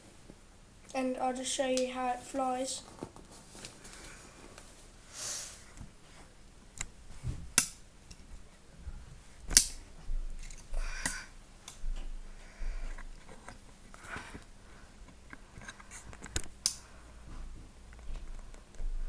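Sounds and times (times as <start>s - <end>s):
soft rustles: 2.1s - 6.4s.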